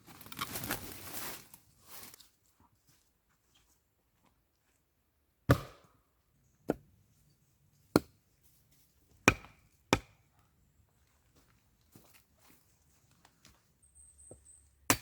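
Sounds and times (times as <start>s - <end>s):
blade chopping into wood: 5.5s - 5.9s, 9.2s - 10.2s.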